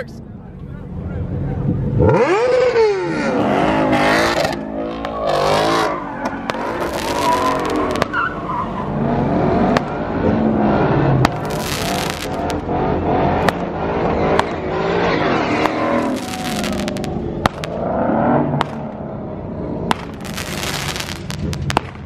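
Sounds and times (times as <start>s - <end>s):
car engine revving: 1.1s - 21.8s
firework cracks: 6.3s - 8.2s, 11.2s - 12.7s, 14.3s - 14.6s, 15.6s - 17.8s, 18.6s - 18.9s, 19.9s - 22.0s.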